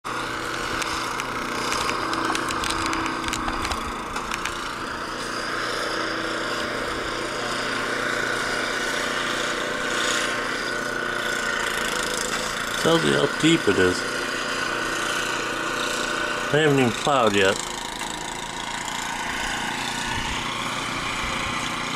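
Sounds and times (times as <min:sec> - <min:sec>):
engine running: 0:00.0 - 0:21.9
sharp clicks and crunches: 0:00.5 - 0:04.8.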